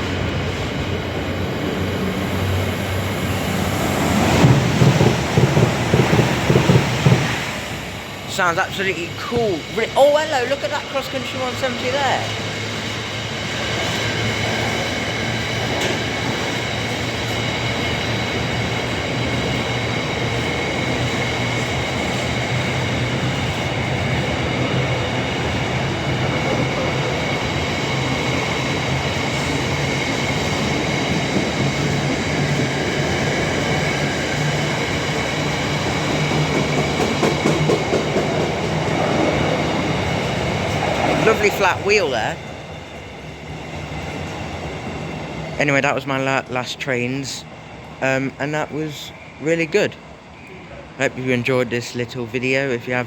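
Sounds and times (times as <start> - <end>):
train wheels on rails: 0.0 - 53.0
flat wheel thumps: 4.4 - 7.4.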